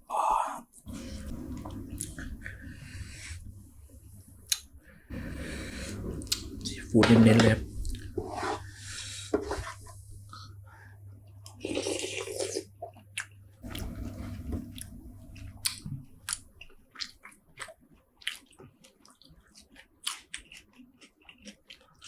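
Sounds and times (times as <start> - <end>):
person chewing with wet clicks: 11.4 - 13.8, 15.4 - 22.0.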